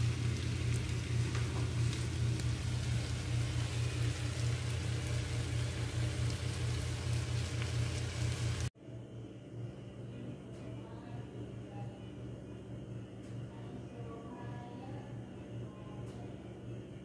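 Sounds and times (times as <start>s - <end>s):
omelette sizzling in frying pan: 0.0s - 8.8s
low hum: 0.0s - 17.0s.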